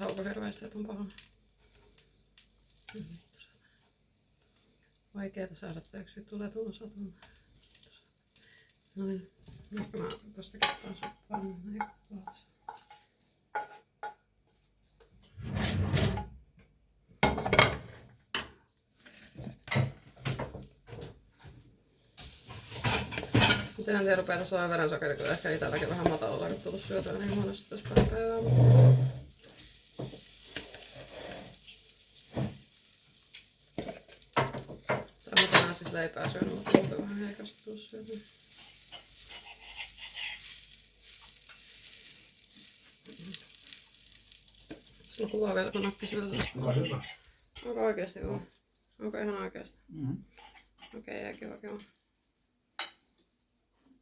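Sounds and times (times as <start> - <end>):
pancake sizzling in a pan: 0.0 - 14.7, 22.1 - 49.5, 50.2 - 54.0
dishes and utensils clattering: 17.2 - 18.6, 22.5 - 24.6, 33.8 - 37.3, 45.2 - 47.8.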